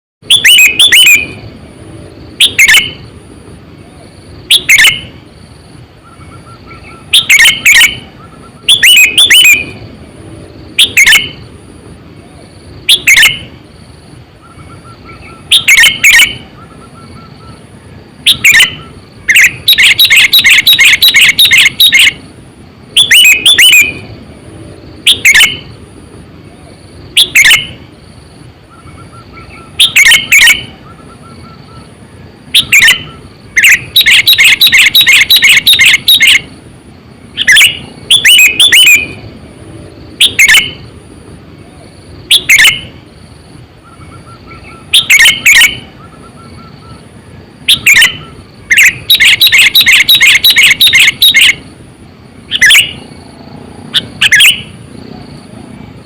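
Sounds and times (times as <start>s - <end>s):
bulbul chirping: 0.2s - 1.4s, 2.3s - 3.1s, 4.0s - 5.2s, 6.0s - 9.9s, 10.6s - 11.5s, 12.8s - 13.6s, 14.4s - 22.2s, 23.0s - 24.1s, 24.9s - 25.8s, 27.1s - 27.8s, 28.7s - 31.9s, 32.5s - 36.5s, 37.4s - 39.2s, 40.2s - 40.9s, 42.2s - 43.0s, 43.8s - 47.1s, 47.7s - 51.6s, 52.5s - 53.1s, 54.0s - 54.8s.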